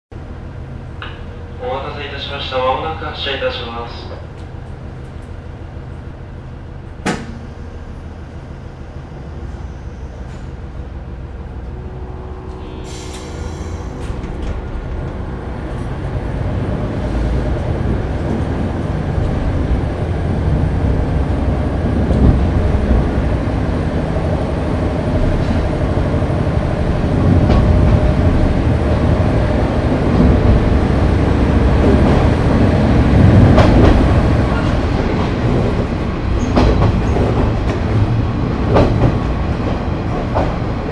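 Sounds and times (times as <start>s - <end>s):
diesel railcar engine: 0.1s - 40.9s
sharp knock: 7.0s - 7.4s
air release hiss: 12.6s - 14.2s.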